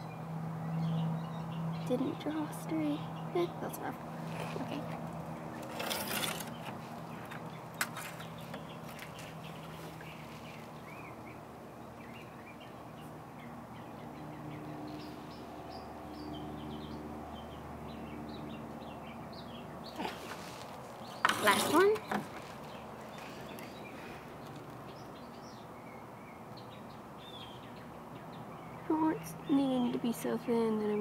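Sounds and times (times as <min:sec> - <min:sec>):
small birds chirping: 0:00.0 - 0:31.0
brief rustle: 0:05.6 - 0:10.0.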